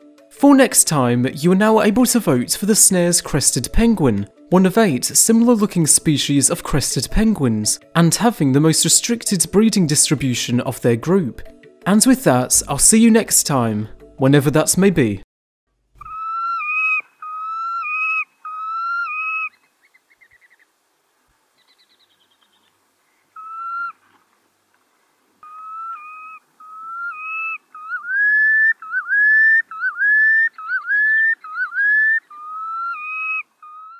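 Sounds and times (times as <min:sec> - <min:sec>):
bird whistled calls: 0:16.0 - 0:20.6, 0:23.4 - 0:24.0, 0:25.4 - 0:33.9.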